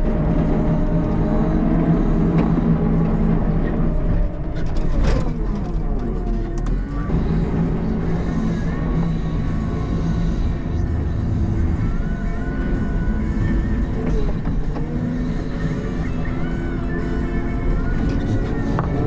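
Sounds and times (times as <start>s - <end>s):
diesel engine running: 0.0s - 19.0s
background music: 6.5s - 19.0s.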